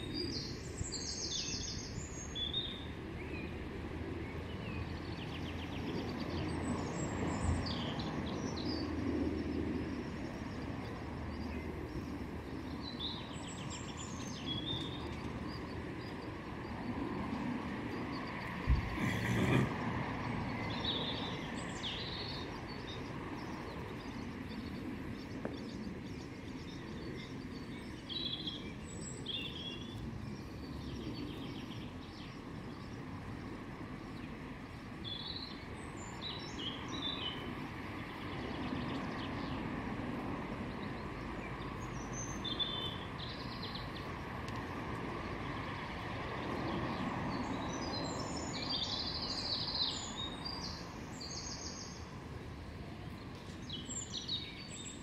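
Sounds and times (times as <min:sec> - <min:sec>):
outdoor background noise: 0:00.0 - 0:55.0
small birds chirping: 0:00.0 - 0:55.0.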